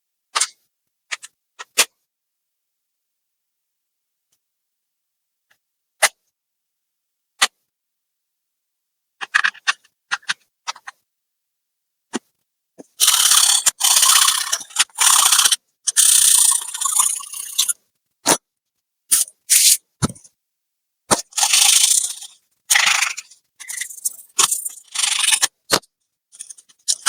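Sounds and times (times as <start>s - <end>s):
ratcheting and scraping: 13.0s - 17.8s, 21.2s - 27.0s
laptop parts clicking: 21.2s - 27.0s.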